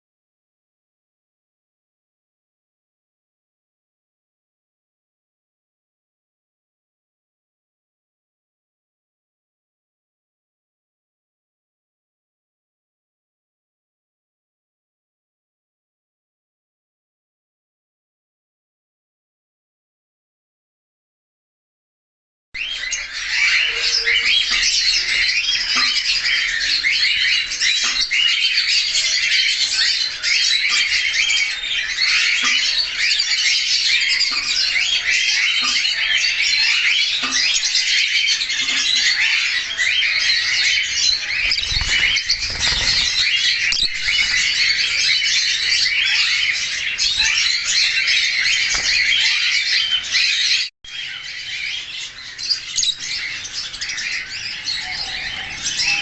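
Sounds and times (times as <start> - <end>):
budgerigars chattering: 22.6 - 56.0.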